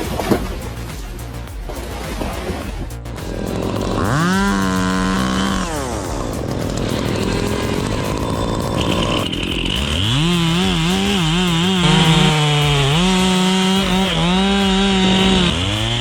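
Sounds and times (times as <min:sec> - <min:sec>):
two-stroke chainsaw revving: 0:03.3 - 0:16.0.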